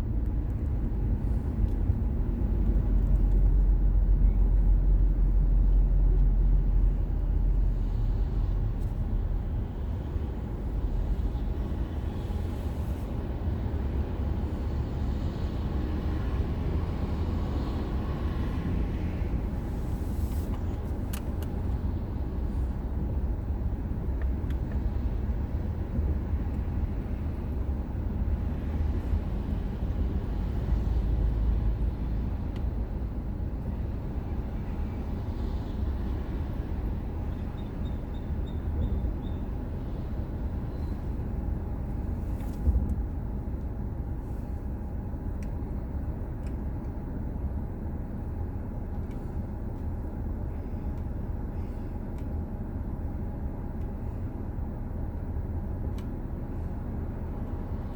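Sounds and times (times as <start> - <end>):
car engine and tyre rumble: 0.0 - 57.9.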